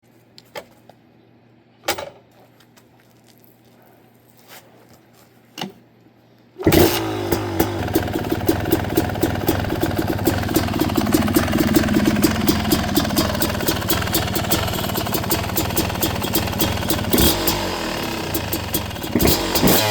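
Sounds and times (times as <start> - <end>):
dirt bike engine running: 6.7 - 19.9.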